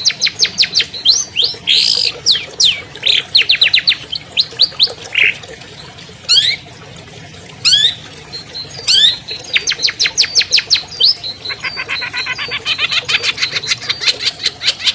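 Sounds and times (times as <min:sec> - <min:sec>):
shrike singing: 0:07.7 - 0:14.3.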